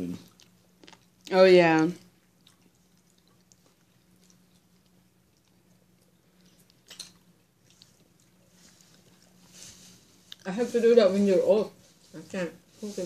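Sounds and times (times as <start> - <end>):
faint low hum: 0.0 - 13.0
chewing clicks: 0.2 - 9.0.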